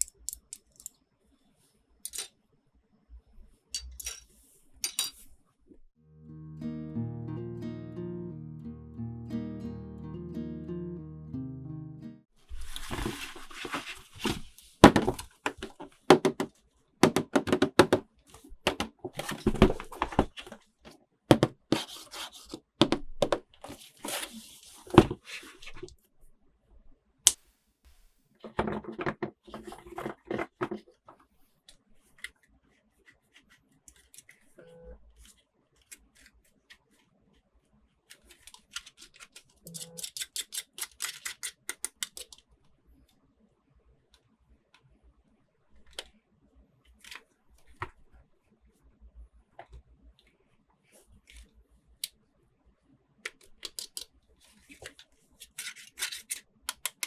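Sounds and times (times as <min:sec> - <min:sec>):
plastic clicks: 0:00.0 - 0:01.0, 0:38.4 - 0:42.4, 0:55.6 - 0:57.0.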